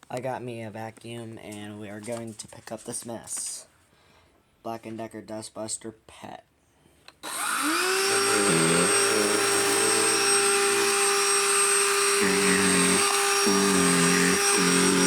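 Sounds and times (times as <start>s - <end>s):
handheld vacuum whining: 7.2s - 15.0s.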